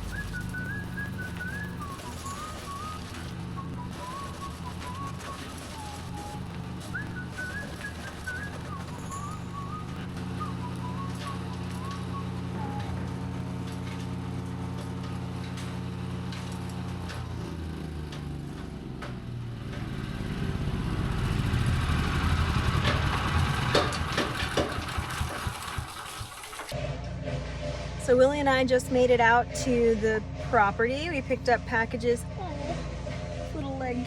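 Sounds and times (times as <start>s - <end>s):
bird whistling: 0.0s - 13.0s
vehicle engine running: 0.0s - 34.0s.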